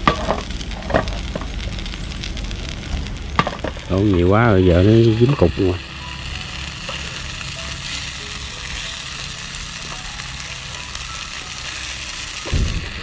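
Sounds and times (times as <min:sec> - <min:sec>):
shrimp sizzling in hot oil: 0:00.0 - 0:13.0
low thump: 0:12.5 - 0:13.0.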